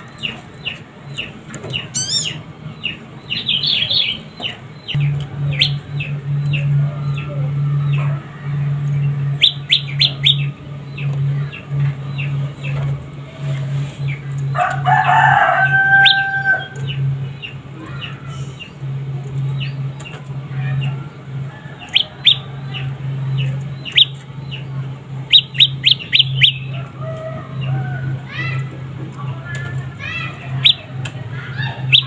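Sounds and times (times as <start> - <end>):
birds chirping: 0.0 - 32.0
low hum: 0.0 - 32.0
rooster crowing: 14.6 - 16.8, 26.7 - 28.3.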